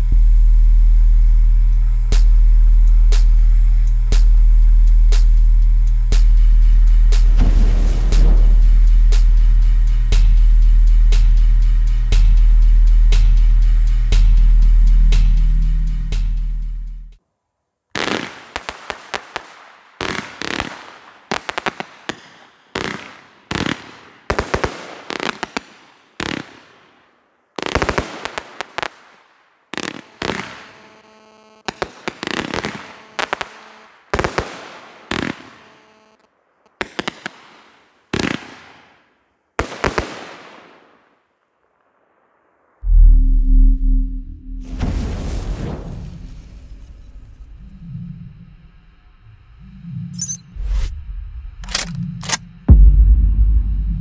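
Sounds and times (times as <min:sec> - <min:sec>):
firework battery bangs: 0:07.3 - 0:09.3
quick firework cracks: 0:07.4 - 0:09.4.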